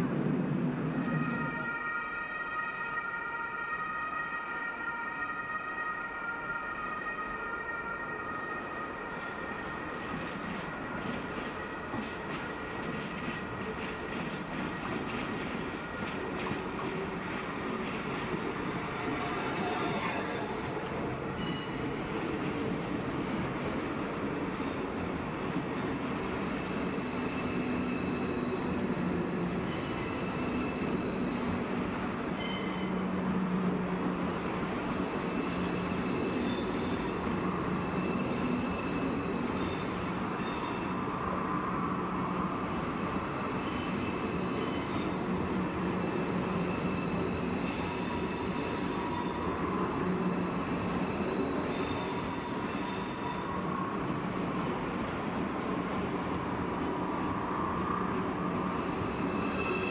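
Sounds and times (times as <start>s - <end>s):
electric train rumbling past: 0.0s - 59.9s
high-pitched wheel squeals: 34.6s - 41.2s, 43.0s - 53.8s, 58.6s - 59.9s.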